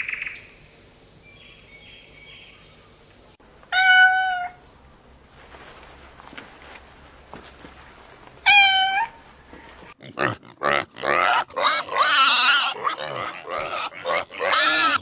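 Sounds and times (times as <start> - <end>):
cat meowing: 3.7 - 4.6, 8.5 - 9.2
animal squealing and grunting: 9.9 - 15.0.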